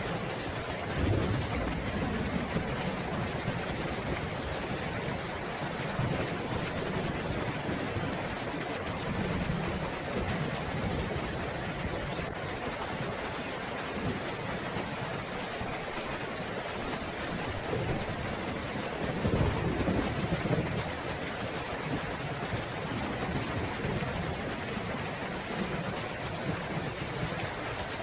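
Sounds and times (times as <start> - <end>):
steady rain: 0.0 - 28.0
rolling thunder: 0.9 - 4.9, 19.0 - 21.0.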